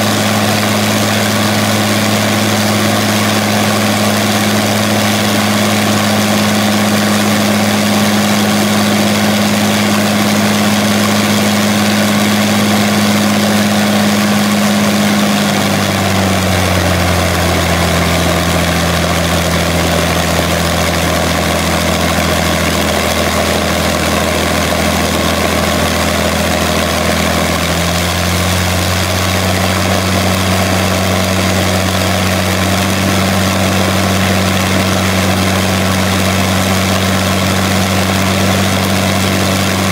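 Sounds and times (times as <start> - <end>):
aero engine running steadily: 0.0 - 39.9.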